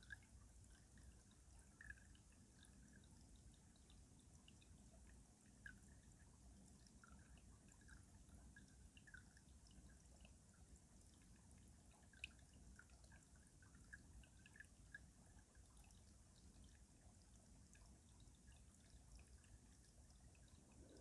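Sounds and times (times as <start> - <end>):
stream water trickling under ice: 0.0 - 21.0.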